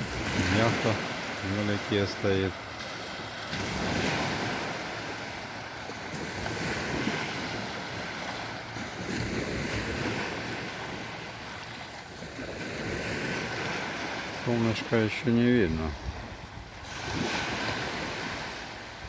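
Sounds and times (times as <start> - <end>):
sea waves washing onto shore: 0.0 - 19.0
wind buffeting microphone: 15.6 - 19.0.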